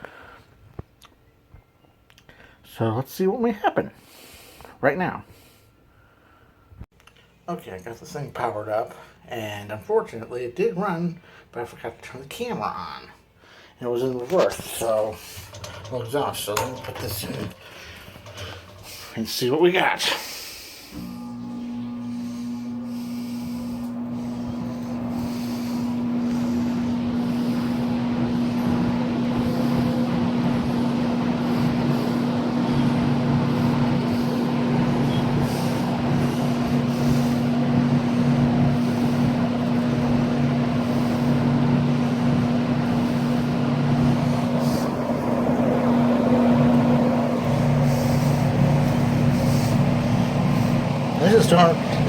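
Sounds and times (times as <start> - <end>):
electric fan motor hum: 14.4 - 19.2, 20.7 - 52.0
air rushing from fan blades: 20.8 - 52.0.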